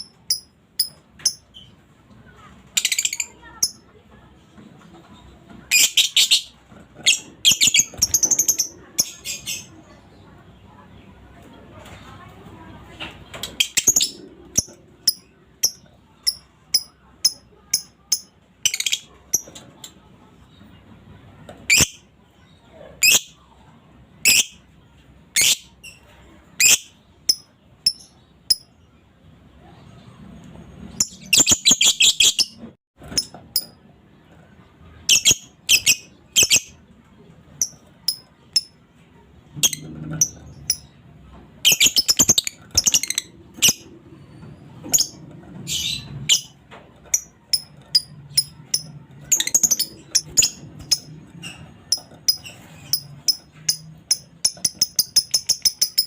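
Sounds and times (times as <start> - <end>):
lovebird chirping: 35.1 - 36.8, 41.6 - 43.8, 47.2 - 56.0.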